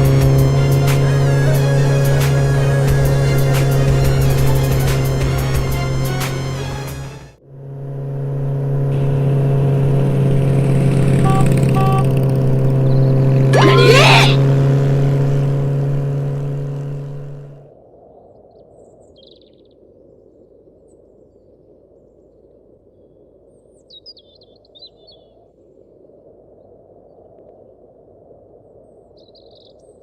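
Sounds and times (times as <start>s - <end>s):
motorcycle engine hum: 0.0s - 6.1s, 7.4s - 17.7s.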